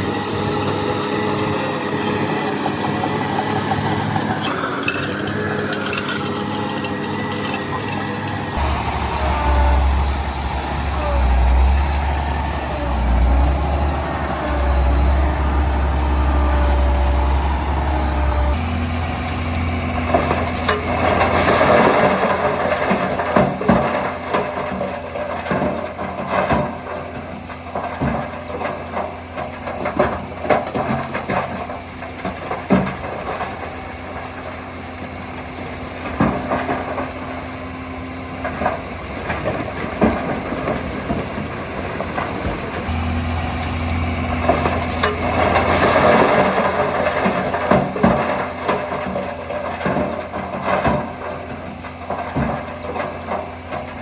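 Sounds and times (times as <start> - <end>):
heavy diesel engine running: 0.0 - 54.0
rushing hiss: 8.6 - 18.5.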